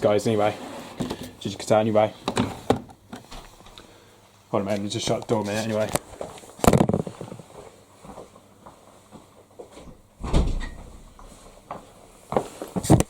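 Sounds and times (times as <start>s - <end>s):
washing machine door thud: 10.2s - 11.1s.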